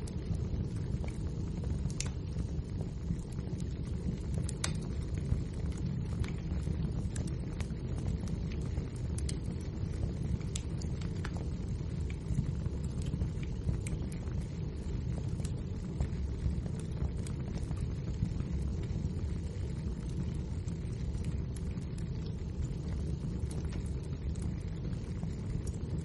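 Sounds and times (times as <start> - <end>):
logs crackling and popping: 0.0 - 26.0
roar of flames: 0.0 - 26.0.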